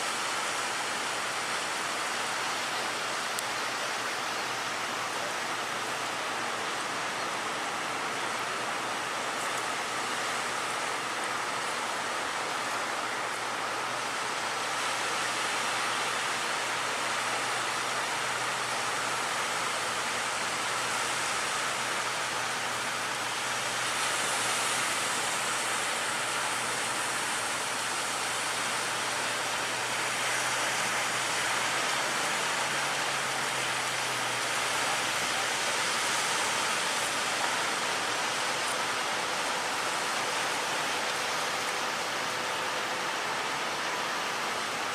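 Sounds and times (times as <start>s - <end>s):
boat engine hum: 0.0s - 44.9s.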